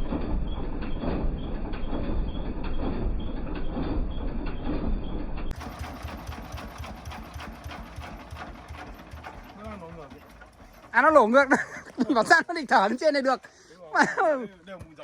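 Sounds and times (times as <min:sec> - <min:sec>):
diesel engine chugging: 0:05.4 - 0:14.4.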